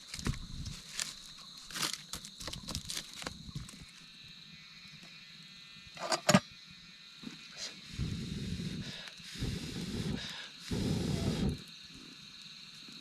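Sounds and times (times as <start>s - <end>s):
crinkling and rustling: 0.0s - 4.0s.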